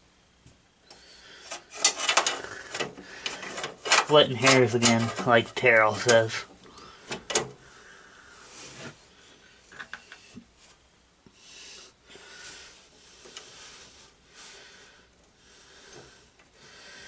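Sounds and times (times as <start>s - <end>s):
slow breathing: 0.8s - 3.7s, 6.6s - 10.4s, 11.3s - 17.0s.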